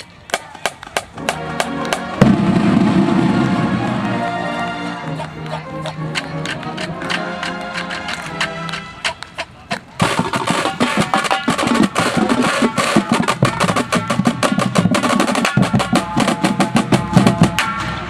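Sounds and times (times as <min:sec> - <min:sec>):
pitched ensemble notes: 0:01.0 - 0:18.0
drumline playing fast drums: 0:05.0 - 0:18.0.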